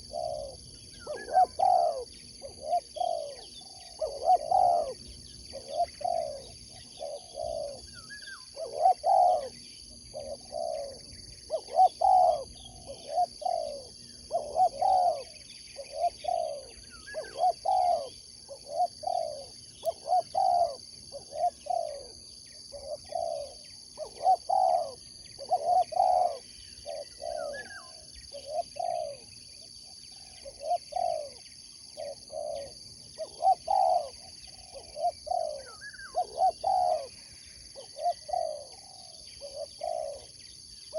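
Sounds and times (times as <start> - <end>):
dove cooing: 0.0 - 29.3, 30.1 - 40.4
faint high bird chirps: 0.0 - 40.9.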